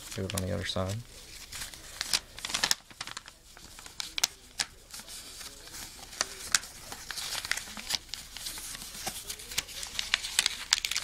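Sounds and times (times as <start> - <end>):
paper being folded and creased: 0.0 - 11.0.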